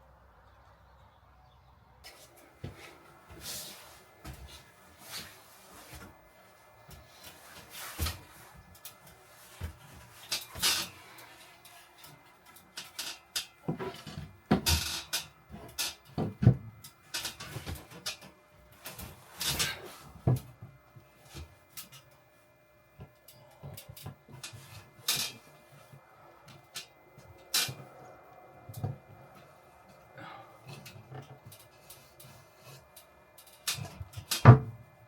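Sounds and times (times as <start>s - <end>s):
scraping and rustling: 2.1s - 16.4s, 17.1s - 20.6s.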